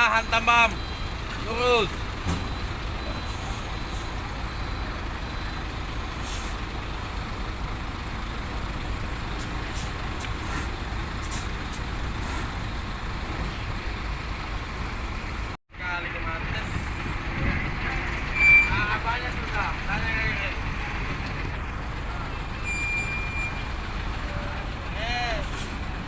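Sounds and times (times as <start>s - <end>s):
diesel truck engine running: 0.0s - 26.0s
air brake hisses: 6.2s - 6.6s, 25.4s - 25.9s.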